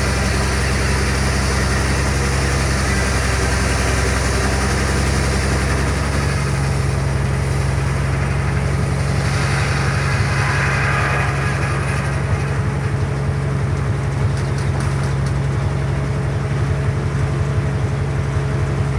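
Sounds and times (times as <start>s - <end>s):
saw blade cutting log: 0.0s - 15.1s
sawmill power unit droning: 0.0s - 18.9s.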